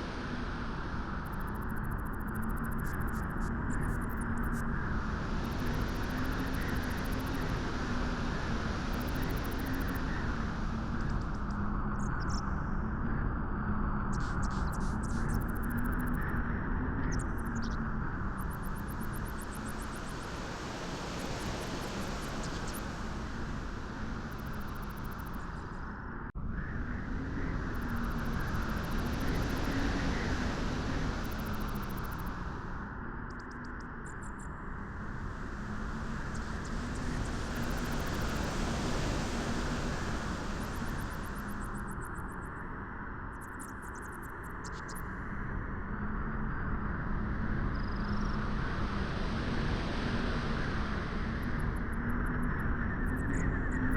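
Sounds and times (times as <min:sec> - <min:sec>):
steady wind blowing: 0:00.0 - 0:13.2, 0:15.5 - 0:53.9.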